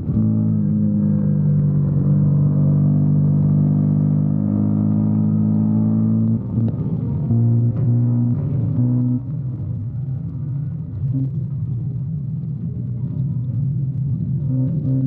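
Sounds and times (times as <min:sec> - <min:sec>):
motorcycle engine cruising: 0:00.0 - 0:11.1.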